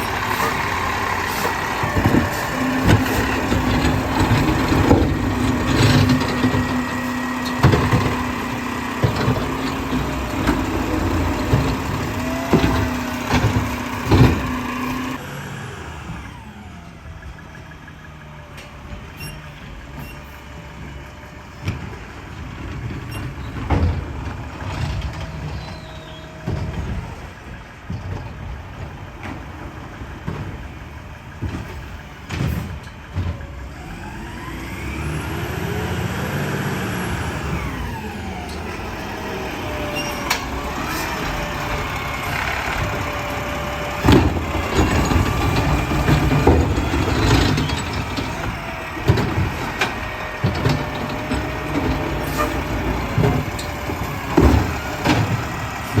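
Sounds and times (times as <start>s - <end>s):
packer compacting trash: 0.0s - 15.4s, 18.6s - 56.0s
garbage truck engine running: 0.0s - 56.0s
sharp bangs and clanks: 37.3s - 56.0s.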